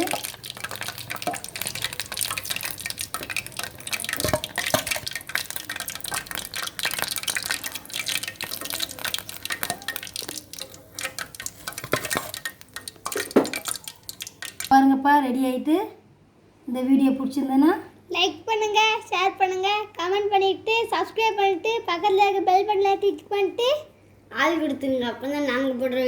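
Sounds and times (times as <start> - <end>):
food deep-frying in oil: 0.0 - 14.9.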